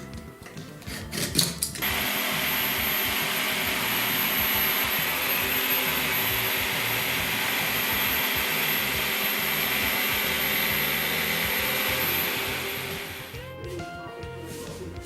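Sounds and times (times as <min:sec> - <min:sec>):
electric motor whirring: 0:01.8 - 0:13.5.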